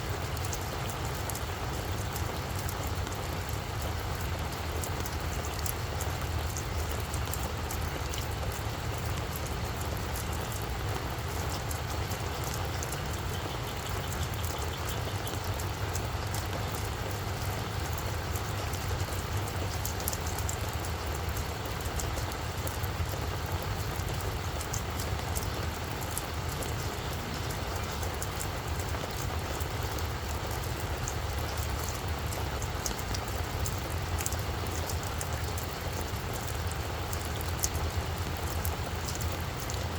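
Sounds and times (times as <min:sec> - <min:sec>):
rain falling on a flower bed: 0:00.0 - 0:39.9.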